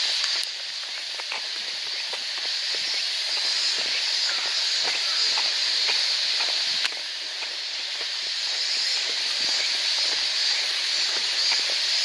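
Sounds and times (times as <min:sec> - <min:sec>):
high-pitched insect chorus: 0:00.0 - 0:12.0
pulsing high insect chirps: 0:00.0 - 0:12.0.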